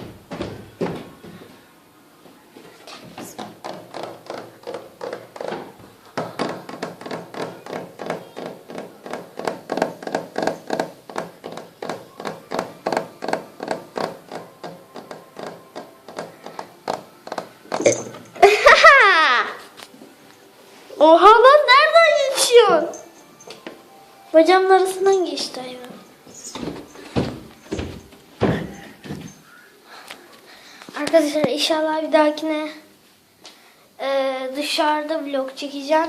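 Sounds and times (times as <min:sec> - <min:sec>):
footsteps walking down stairs: 0:00.0 - 0:17.9, 0:26.2 - 0:29.5.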